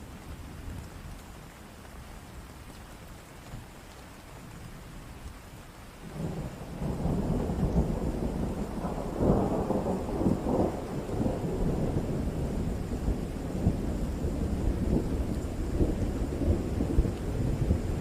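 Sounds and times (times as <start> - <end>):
steady rain: 0.0 - 18.0
rolling thunder: 6.1 - 18.0.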